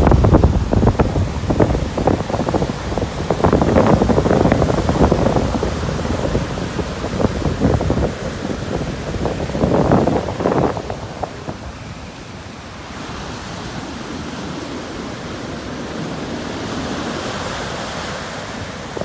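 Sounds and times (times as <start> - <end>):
ocean surf breaking on beach: 0.0 - 19.0.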